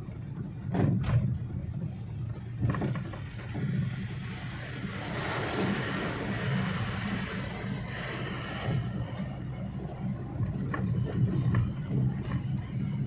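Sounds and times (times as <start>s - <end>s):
car engine and tyre rumble: 0.0s - 13.0s
road or wind noise hiss: 4.2s - 8.9s.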